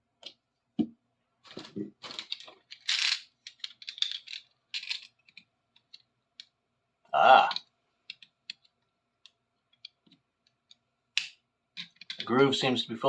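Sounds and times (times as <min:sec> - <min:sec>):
metal scraping and clinking: 0:01.6 - 0:05.4.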